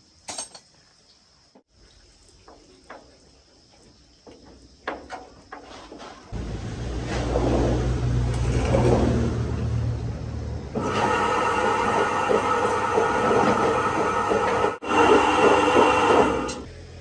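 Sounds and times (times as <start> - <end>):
concrete mixer engine running: 6.4 - 17.0.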